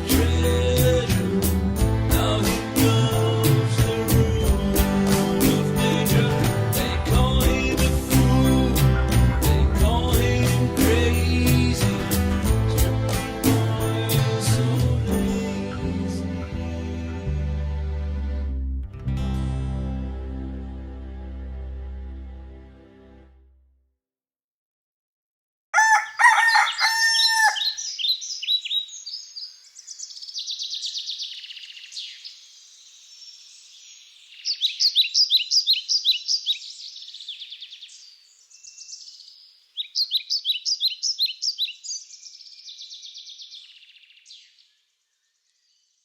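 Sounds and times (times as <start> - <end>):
rooster crowing: 25.8 - 27.9
songbirds trilling: 25.8 - 46.0.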